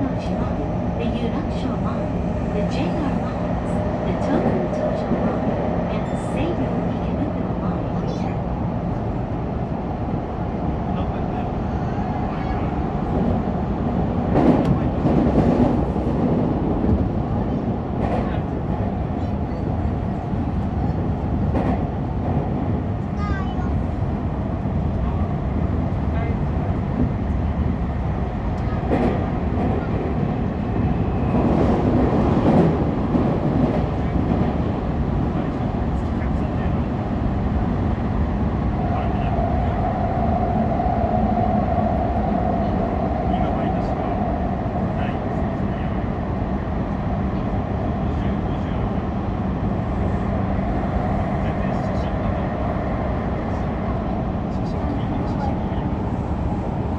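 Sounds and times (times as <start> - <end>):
subway wheels rumbling on rail: 0.0 - 56.9.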